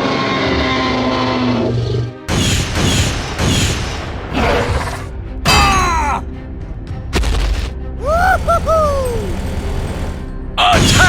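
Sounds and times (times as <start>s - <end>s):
background music: 1.4s - 11.0s
falling whistles: 8.0s - 10.2s.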